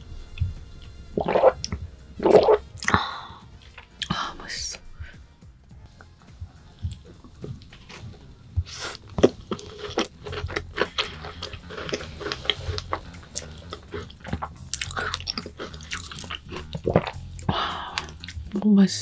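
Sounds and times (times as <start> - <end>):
chewing crumbly tart: 5.9 - 18.6.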